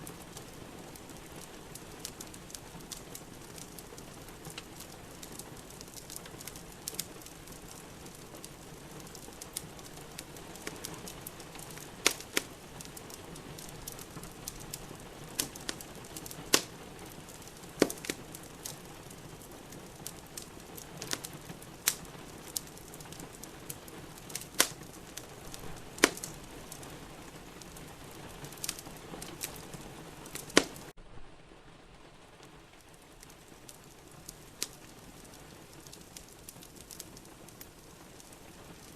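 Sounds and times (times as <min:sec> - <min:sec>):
sharp pops of fire: 0:00.0 - 0:30.9, 0:32.8 - 0:38.9
steady hiss: 0:00.0 - 0:38.9
wood fire crackling: 0:00.0 - 0:38.9.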